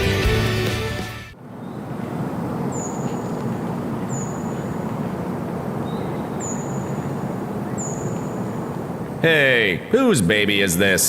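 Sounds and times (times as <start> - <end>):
outdoor background rumble: 0.0 - 10.3
small bird calling: 1.4 - 9.9.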